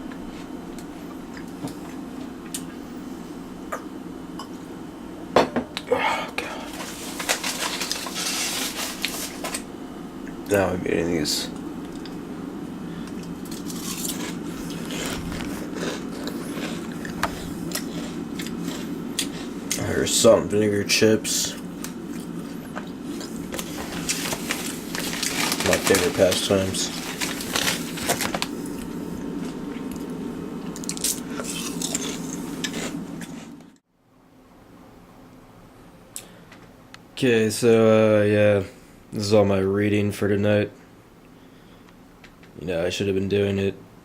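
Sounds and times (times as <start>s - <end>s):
steady low hum: 0.0s - 44.0s
crunching potato chips: 6.7s - 9.7s, 13.2s - 20.2s, 23.2s - 30.1s, 30.7s - 33.6s.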